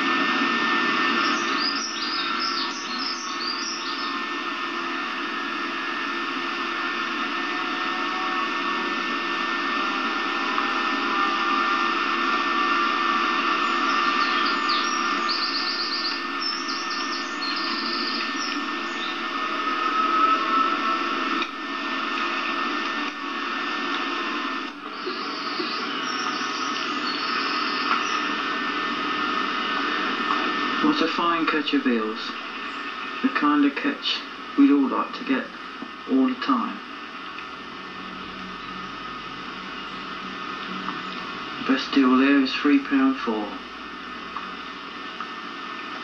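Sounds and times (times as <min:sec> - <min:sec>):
steady hiss and hum: 0:00.0 - 0:46.0
small birds trilling: 0:01.2 - 0:04.3, 0:13.5 - 0:19.5, 0:24.9 - 0:28.4.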